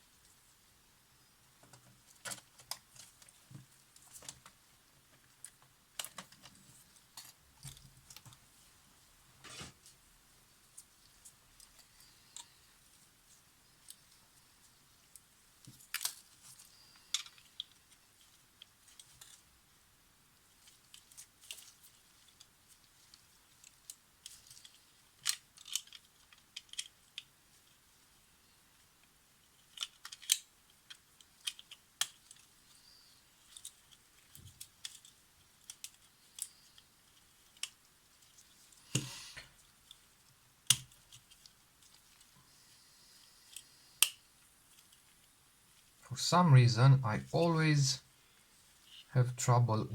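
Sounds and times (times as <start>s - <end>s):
small metallic clicks and taps: 23.6s - 27.3s, 29.7s - 32.5s, 40.7s - 42.3s.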